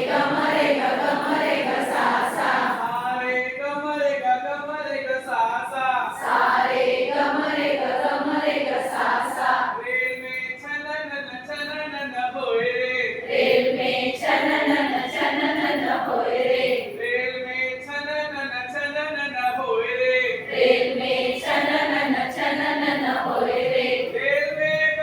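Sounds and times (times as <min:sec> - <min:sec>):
group singing unaccompanied: 0:00.0 - 0:03.2, 0:06.1 - 0:09.9, 0:13.2 - 0:17.1, 0:20.4 - 0:24.8.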